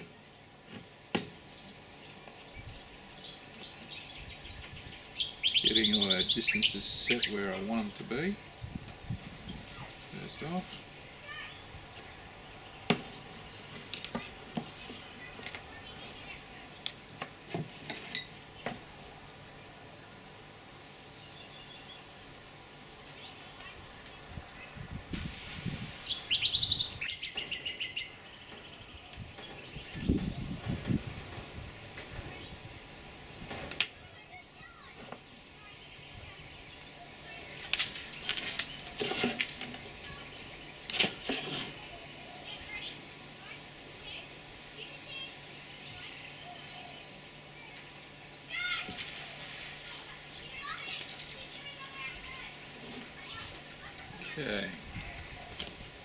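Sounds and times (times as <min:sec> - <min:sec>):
cord rustling scrapes: 0:37.4 - 0:40.3, 0:40.9 - 0:41.9.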